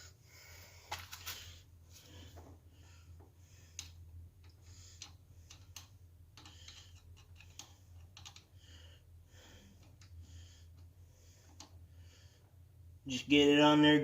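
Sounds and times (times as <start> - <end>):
screwdriver clicking and scraping: 3.8 - 8.5.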